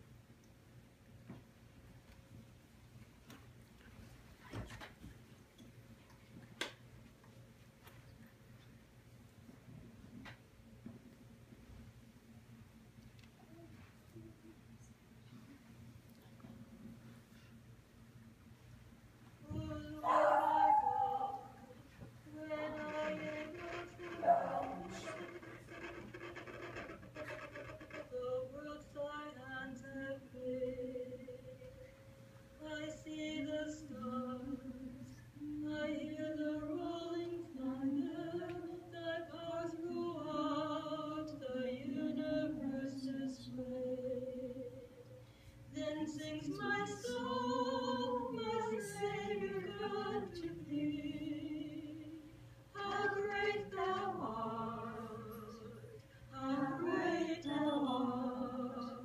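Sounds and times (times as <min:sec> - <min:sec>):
group singing unaccompanied: 0:22.4 - 0:25.4, 0:37.6 - 0:43.8, 0:45.8 - 0:52.1, 0:52.8 - 0:59.0.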